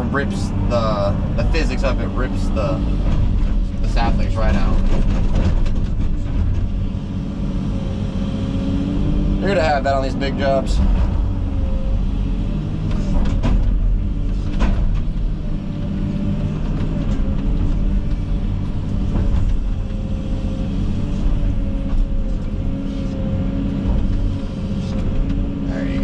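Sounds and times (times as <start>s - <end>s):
excavator diesel drone: 0.0s - 26.0s.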